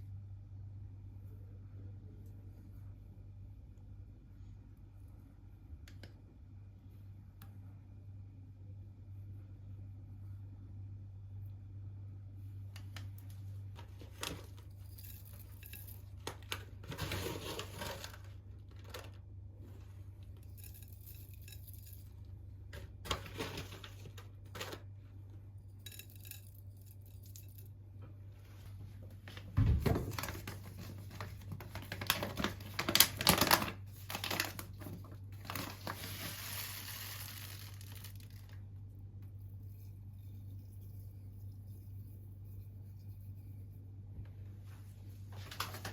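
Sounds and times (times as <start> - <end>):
steady low hum: 0.0 - 32.0, 33.8 - 45.9
packaging tearing and crinkling: 30.1 - 34.8, 35.4 - 38.6.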